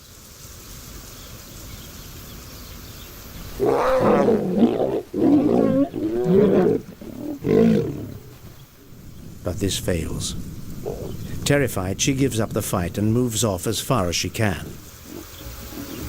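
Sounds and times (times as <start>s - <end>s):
lioness roaring: 3.5s - 9.5s, 10.3s - 11.4s.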